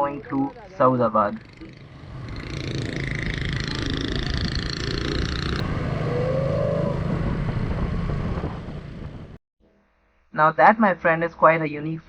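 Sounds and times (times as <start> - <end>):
motorcycle engine running: 0.0 - 9.4
road and traffic noise: 0.0 - 9.4
brief rising tone: 1.4 - 9.4.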